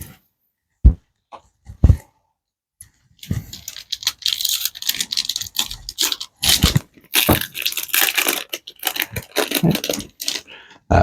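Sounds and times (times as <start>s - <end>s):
plastic wrapper crinkling and tearing: 3.2s - 10.6s.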